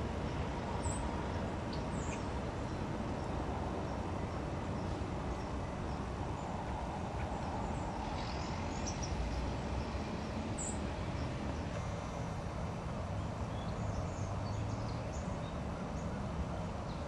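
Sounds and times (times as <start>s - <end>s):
low rumbly outdoor noise: 0.0s - 17.0s.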